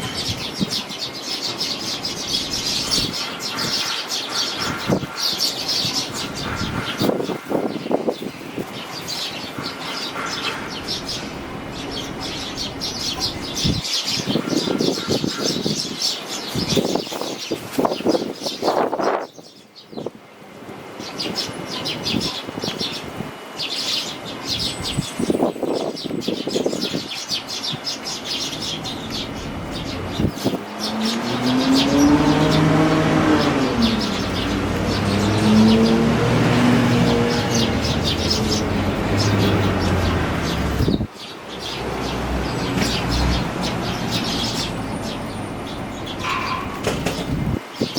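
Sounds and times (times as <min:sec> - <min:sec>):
wind gusts on microphone: 0:00.0 - 0:01.4, 0:04.6 - 0:23.5, 0:24.4 - 0:47.9
fledgling sparrows chirping: 0:00.0 - 0:47.9
vehicle engine droning past: 0:29.1 - 0:41.0.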